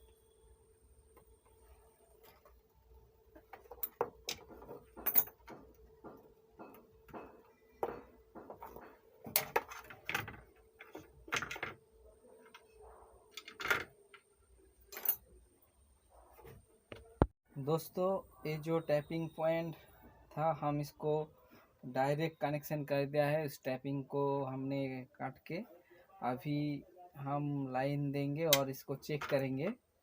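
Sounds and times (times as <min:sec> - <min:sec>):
tools clicking and knocking: 0:03.4 - 0:11.8.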